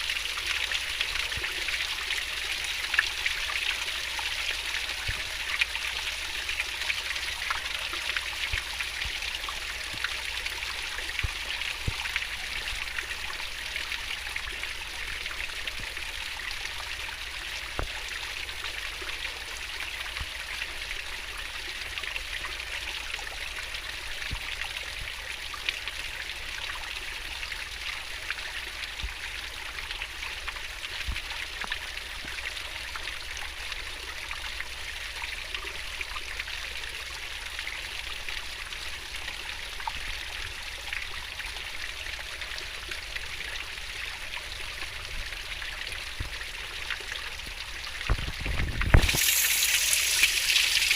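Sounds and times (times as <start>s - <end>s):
water drips and plops: 0.0s - 26.6s, 39.2s - 50.9s.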